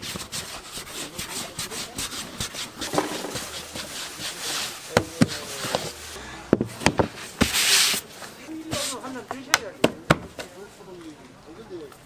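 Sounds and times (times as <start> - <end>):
dough kneaded on wooden table: 0.0 - 8.1.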